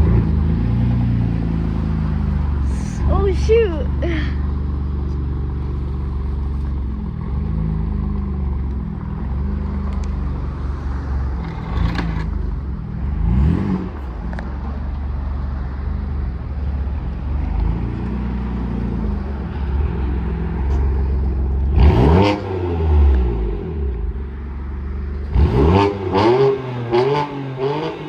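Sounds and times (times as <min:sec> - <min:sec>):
car engine idling: 0:00.0 - 0:25.6
car engine revving: 0:05.6 - 0:14.5, 0:16.9 - 0:28.0.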